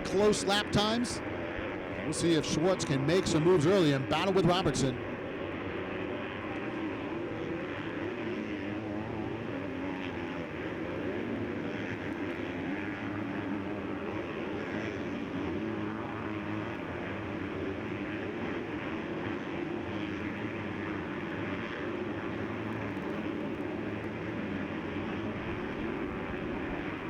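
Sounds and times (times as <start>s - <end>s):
motocross bikes racing: 0.0s - 5.2s.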